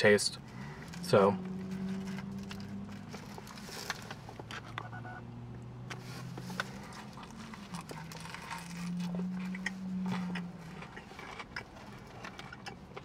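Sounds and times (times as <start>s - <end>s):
person chewing sandwich: 6.2s - 13.0s.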